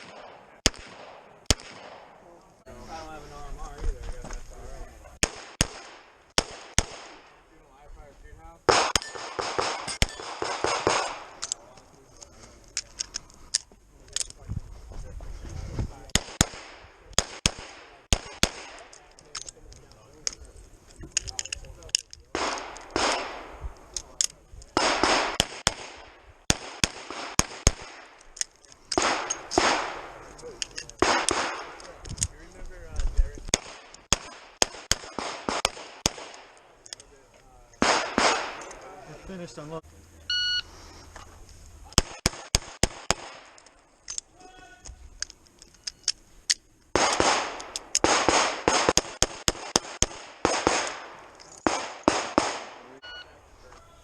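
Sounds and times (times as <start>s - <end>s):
handgun shots echoing: 0.0s - 2.2s, 22.3s - 23.6s, 31.0s - 31.9s, 47.0s - 52.8s
gunshot echo: 0.0s - 2.3s, 5.2s - 7.4s, 8.7s - 11.4s, 16.2s - 18.9s, 22.4s - 23.7s, 24.8s - 28.2s, 29.0s - 30.2s, 31.0s - 31.8s, 33.5s - 36.6s, 37.8s - 38.7s, 47.0s - 53.0s.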